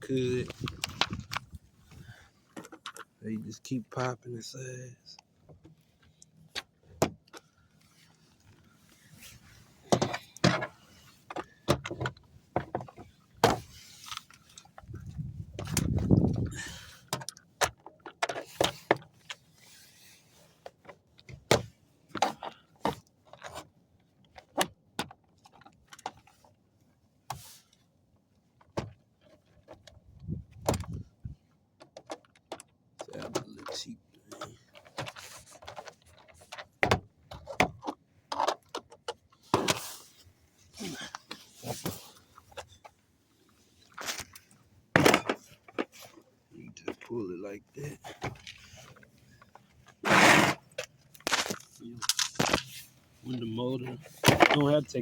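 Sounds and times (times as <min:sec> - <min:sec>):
door panel scraping: 0:50.0 - 0:50.8.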